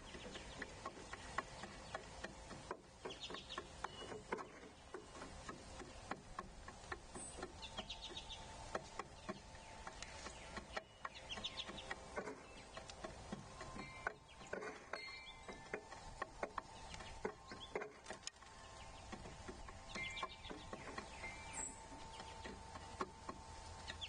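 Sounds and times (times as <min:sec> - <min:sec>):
birds pecking seed: 0:00.0 - 0:24.0
high rapid chittering bird call: 0:07.1 - 0:12.9, 0:18.6 - 0:22.9.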